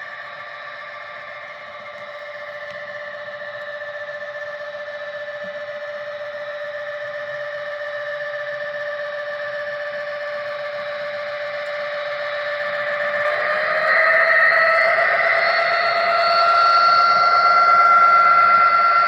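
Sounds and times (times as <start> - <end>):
model locomotive whine: 0.0 - 19.0.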